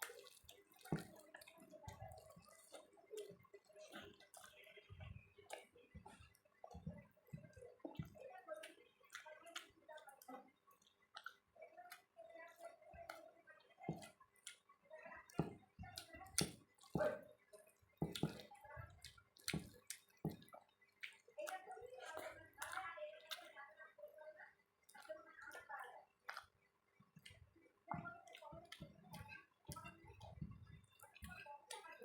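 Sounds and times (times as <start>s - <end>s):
wet chewing: 0.0s - 23.6s, 24.8s - 32.0s
mouth clicks and smacks: 26.2s - 26.6s.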